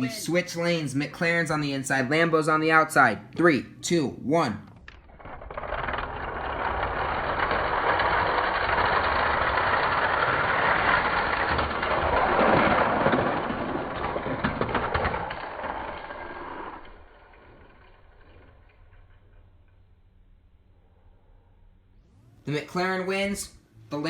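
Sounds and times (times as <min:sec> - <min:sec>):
toy cars rolling on plastic track: 0:04.8 - 0:20.0.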